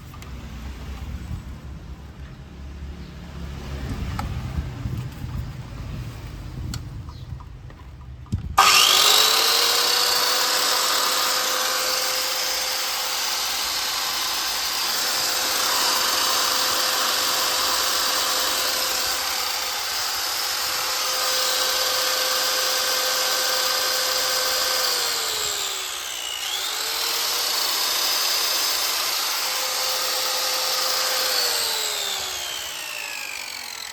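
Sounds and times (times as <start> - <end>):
electric saw cutting wood: 8.6 - 33.9.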